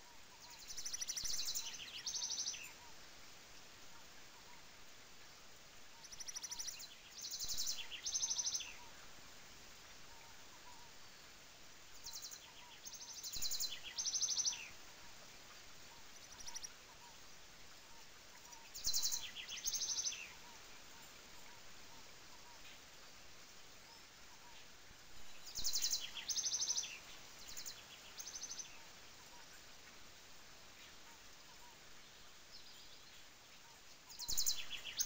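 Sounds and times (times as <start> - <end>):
falling water hiss: 0.0 - 35.0
songbird trilling song: 0.2 - 3.0, 5.9 - 9.0, 11.9 - 14.8, 15.9 - 17.3, 18.0 - 21.7, 23.9 - 29.6, 30.8 - 35.0.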